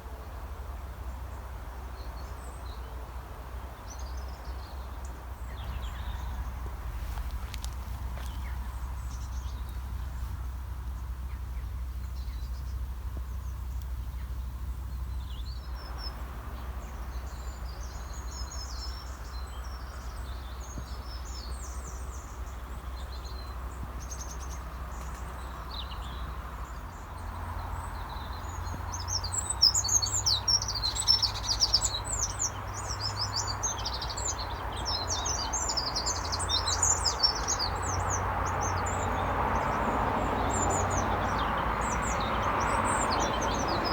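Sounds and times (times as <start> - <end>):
low background rumble: 0.0 - 43.9
small birds chirping: 0.0 - 43.9.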